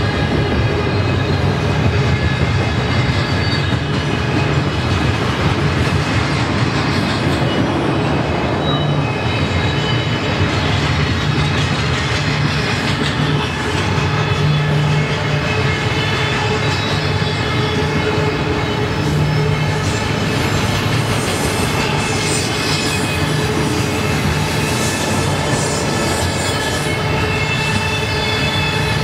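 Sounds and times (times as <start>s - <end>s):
steel wheels rumbling on rail: 0.0s - 29.0s.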